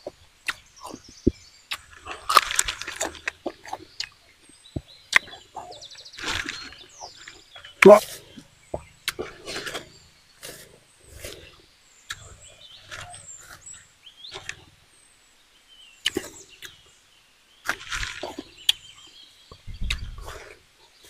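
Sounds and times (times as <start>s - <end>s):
wet smacking mouth noises: 7.8s - 8.0s.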